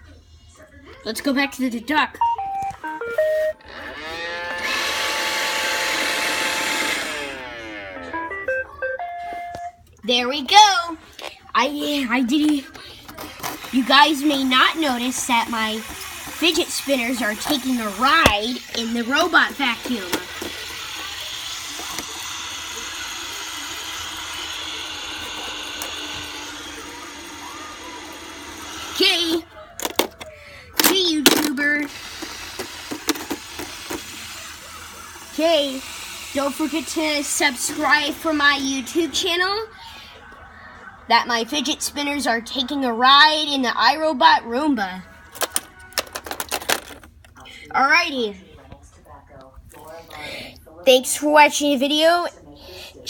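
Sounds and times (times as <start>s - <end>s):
robot vacuum beep tones: 2.2s - 3.7s, 7.9s - 9.8s
robot vacuum motors whirring: 3.3s - 8.2s, 11.8s - 39.6s.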